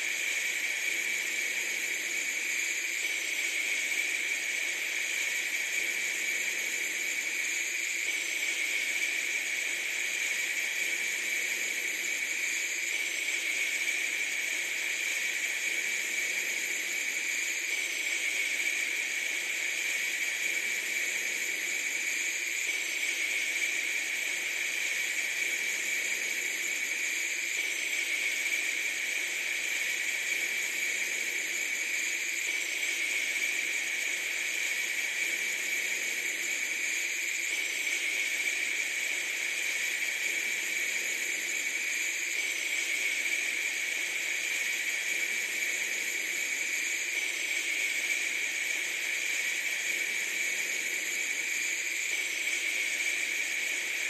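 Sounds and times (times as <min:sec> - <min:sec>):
high-pitched hiss: 0:00.0 - 0:54.0.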